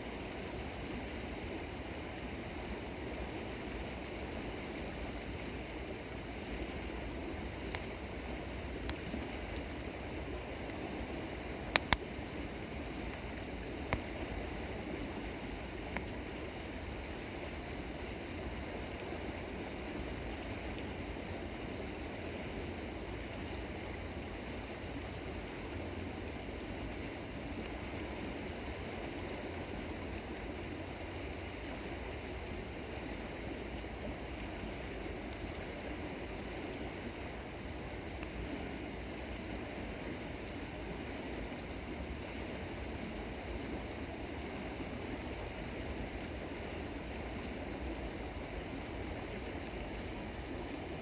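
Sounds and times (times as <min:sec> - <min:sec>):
river water running: 0:00.0 - 0:51.0
campfire popping: 0:07.5 - 0:08.0, 0:08.6 - 0:14.4.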